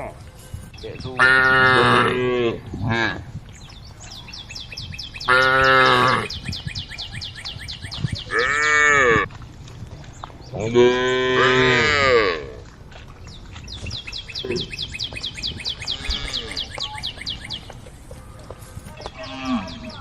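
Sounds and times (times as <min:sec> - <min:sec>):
cows mooing: 0:01.1 - 0:03.3, 0:05.2 - 0:06.4, 0:08.3 - 0:09.3, 0:10.6 - 0:12.6, 0:15.8 - 0:16.7.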